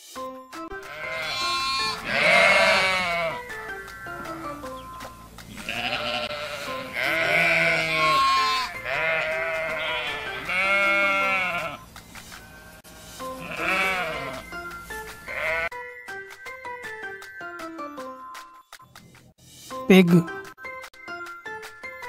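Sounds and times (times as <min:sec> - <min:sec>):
background music: 0:00.0 - 0:22.0
sheep bleating: 0:00.8 - 0:03.5, 0:05.5 - 0:11.8, 0:12.6 - 0:14.6, 0:15.2 - 0:15.7.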